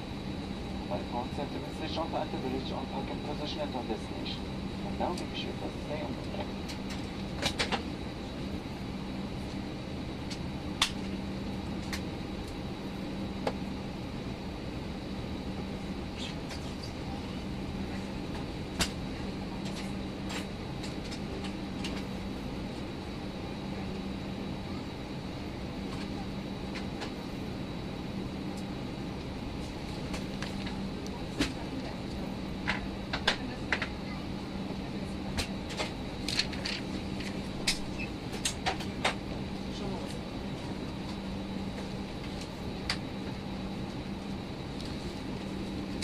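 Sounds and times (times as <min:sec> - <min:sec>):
aircraft cabin air conditioning hum: 0:00.0 - 0:46.0.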